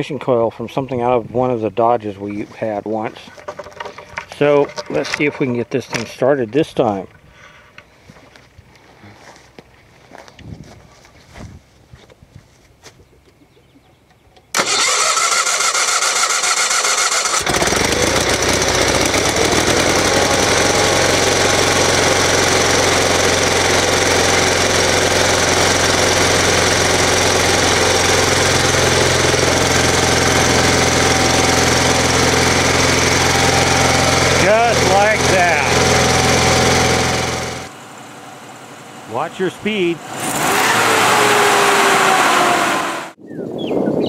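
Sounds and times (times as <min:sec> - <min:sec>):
starter cranking engine: 0:14.5 - 0:37.7, 0:40.2 - 0:42.8
gas engine running: 0:14.6 - 0:43.2.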